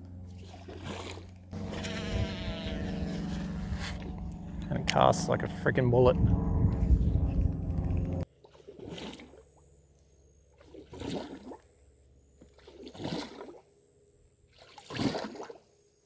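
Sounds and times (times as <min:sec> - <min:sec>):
loud noise cutting off: 0:01.3 - 0:08.2.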